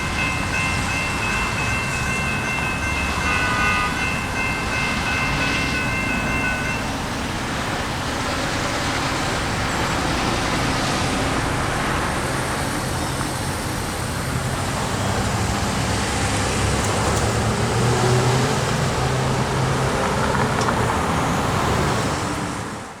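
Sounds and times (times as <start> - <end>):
road traffic passing: 0.0 - 23.0
vehicle engine hum: 7.0 - 23.0.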